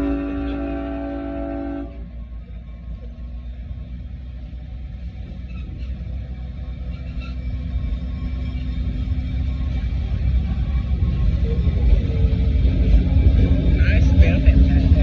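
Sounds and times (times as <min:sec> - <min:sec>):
train horn chord: 0:00.0 - 0:02.1
train running rumble: 0:00.0 - 0:15.0.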